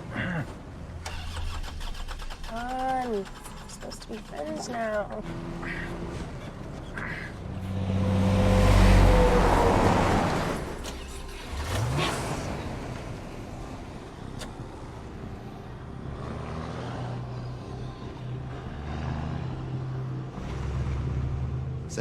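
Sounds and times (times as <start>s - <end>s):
vehicle passing by: 5.2s - 14.4s, 15.2s - 22.0s
engine rising in pitch: 7.4s - 22.0s.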